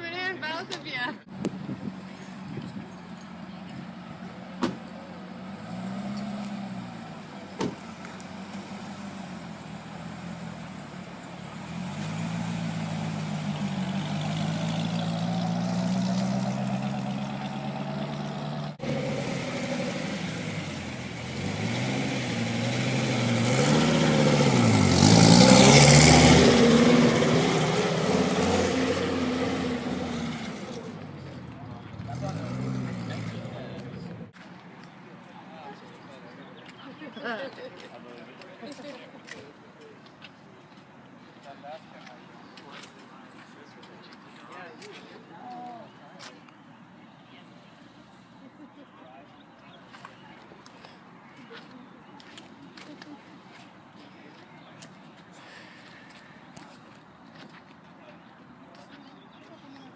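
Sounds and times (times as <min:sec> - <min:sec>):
car engines running at low speed: 0:01.3 - 0:34.8
car passing close: 0:03.9 - 0:34.4.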